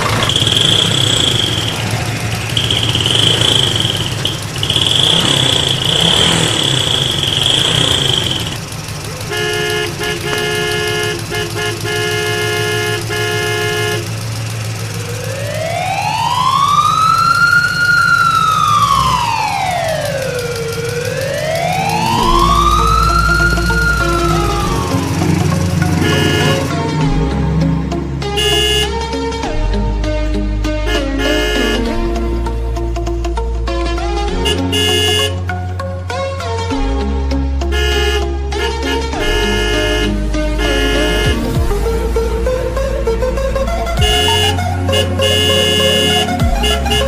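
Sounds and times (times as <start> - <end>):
toy siren wailing: 0.0 - 10.9, 15.1 - 26.8
high steady beeping tone: 0.0 - 11.1, 19.7 - 26.8, 44.0 - 47.0
pulsing electronic tones: 0.0 - 12.1, 13.8 - 27.8, 39.2 - 47.0.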